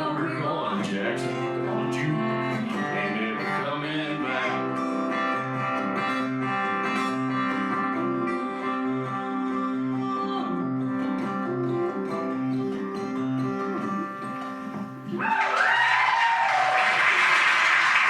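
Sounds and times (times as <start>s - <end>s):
strummed acoustic guitar: 0.0s - 15.2s
audience applause: 15.2s - 18.0s.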